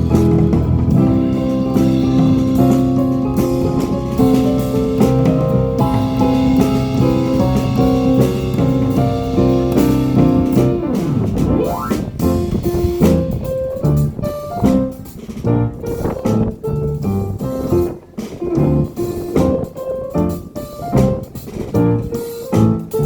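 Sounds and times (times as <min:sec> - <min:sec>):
guitar: 0:00.0 - 0:14.1
drum kit: 0:00.0 - 0:23.0
piano chords and melody: 0:00.0 - 0:23.0.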